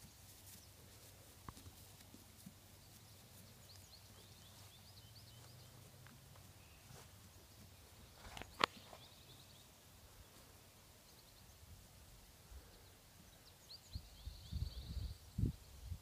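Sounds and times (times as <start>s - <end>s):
small bird chirping: 2.8s - 10.4s, 12.7s - 15.8s.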